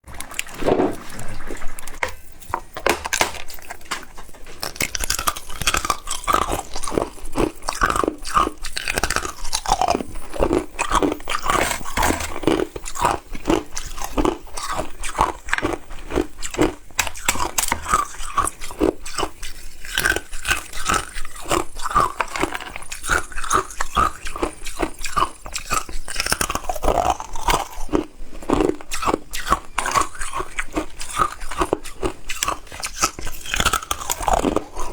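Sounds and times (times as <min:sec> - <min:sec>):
ice being chewed: 0:00.0 - 0:34.9.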